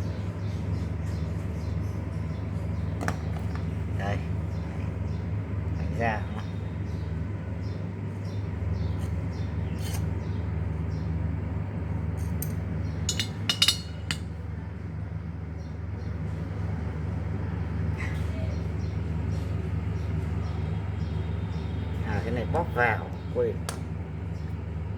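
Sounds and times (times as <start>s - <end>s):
steady low hum: 0.0s - 24.9s
metallic clinks of tools: 12.4s - 14.2s.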